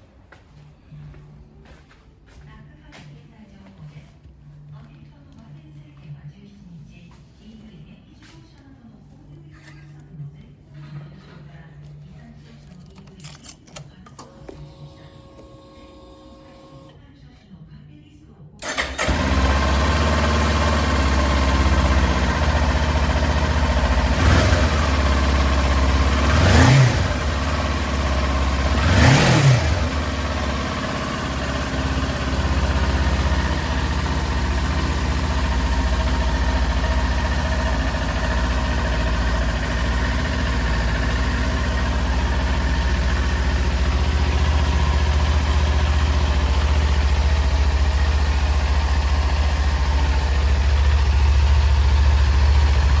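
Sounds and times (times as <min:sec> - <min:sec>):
engine throttle blips: 0:18.6 - 0:53.0
motorcycle engine idling: 0:18.6 - 0:53.0.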